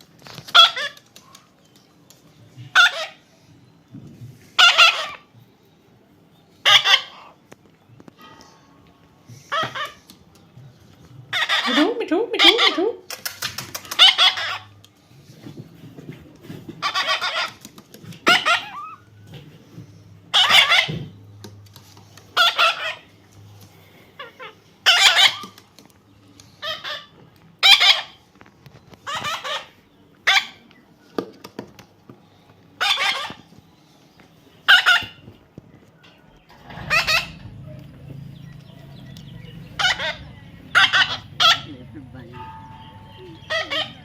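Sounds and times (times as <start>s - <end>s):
parrot harsh calls: 0.5s - 1.0s, 2.7s - 3.2s, 4.6s - 5.3s, 6.6s - 7.4s, 9.5s - 10.0s, 11.3s - 13.0s, 13.9s - 14.8s, 16.8s - 17.6s, 18.2s - 19.1s, 20.3s - 21.1s, 22.4s - 23.1s, 24.2s - 25.6s, 26.6s - 28.2s, 29.0s - 30.6s, 32.8s - 33.5s, 34.6s - 35.2s, 36.6s - 37.5s, 39.7s - 41.7s, 43.4s - 44.0s.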